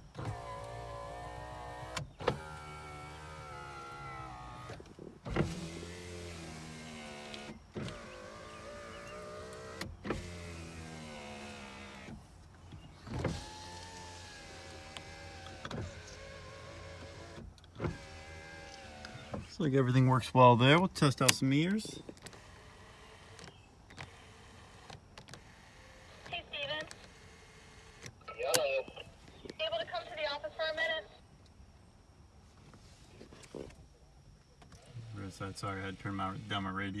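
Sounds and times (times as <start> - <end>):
power window motor whine: 0.0 - 29.6, 34.5 - 37.0
window clunk: 4.5 - 5.8.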